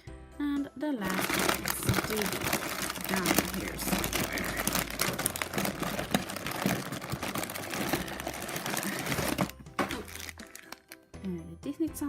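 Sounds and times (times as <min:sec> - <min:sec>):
plastic and foil packets crinkling: 0:01.0 - 0:11.1.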